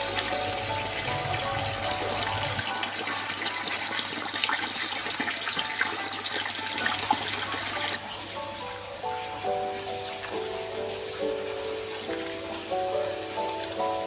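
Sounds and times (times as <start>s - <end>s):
water running and splashing: 0.0s - 14.0s.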